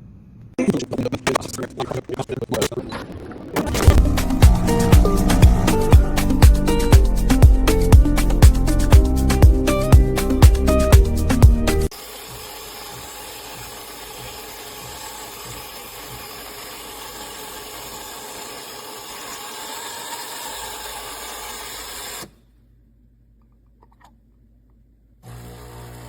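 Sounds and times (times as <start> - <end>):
espresso machine hissing: 3.8 - 7.0.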